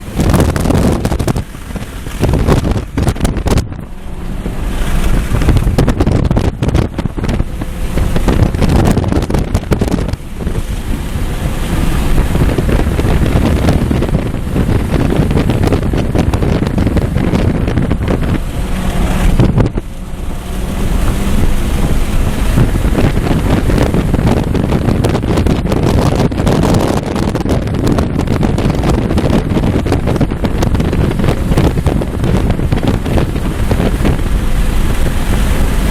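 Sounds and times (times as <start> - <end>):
car engine running hard: 0.0 - 35.9
wind noise on microphone: 0.0 - 35.9.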